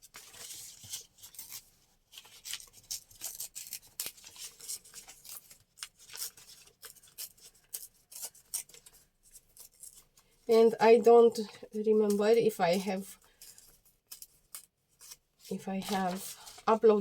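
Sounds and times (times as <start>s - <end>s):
scissors cutting paper: 0.1s - 10.1s, 13.2s - 15.2s.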